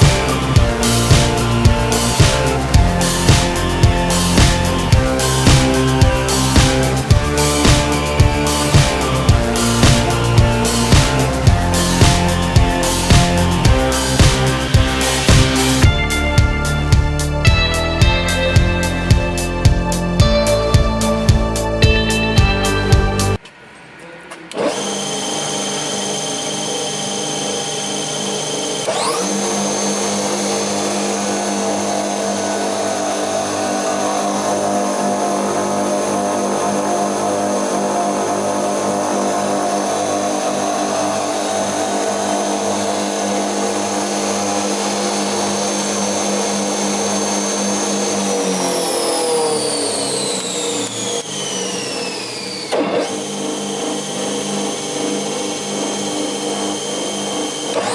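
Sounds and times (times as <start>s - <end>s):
spindle moulder motor whining: 24.4s - 57.9s.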